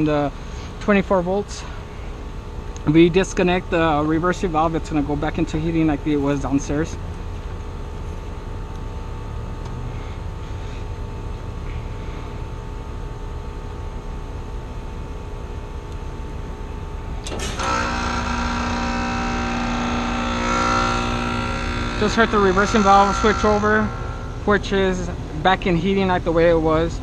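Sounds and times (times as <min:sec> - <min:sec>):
heat pump humming: 0:00.0 - 0:27.0
valve switching over: 0:17.2 - 0:25.1.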